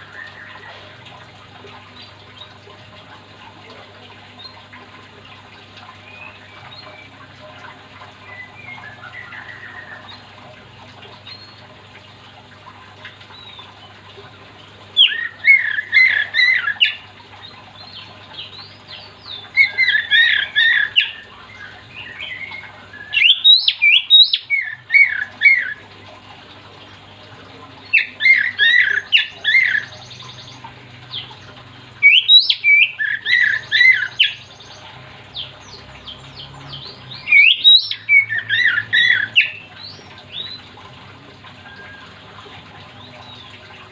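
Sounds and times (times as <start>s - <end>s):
bird singing whistled phrases: 19.6s - 24.8s, 32.0s - 34.5s, 37.2s - 39.6s.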